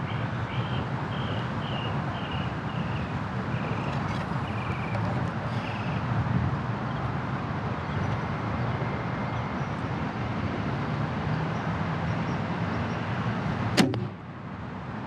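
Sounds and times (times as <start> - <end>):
bow string crack: 13.8 - 14.2.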